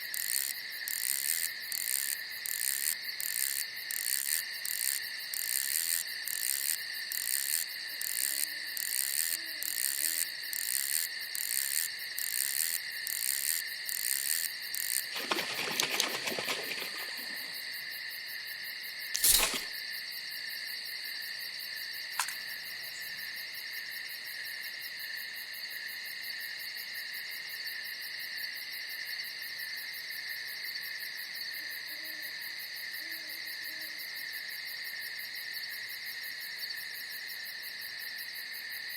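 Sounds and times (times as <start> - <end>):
crickets chirping: 0.0 - 38.9
steady high insect trill: 0.0 - 38.9.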